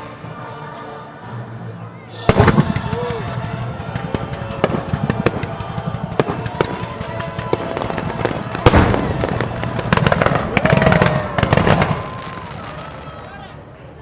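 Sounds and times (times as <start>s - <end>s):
fireworks bangs and crackles: 2.1s - 13.5s
heavy firework boom: 2.2s - 12.8s.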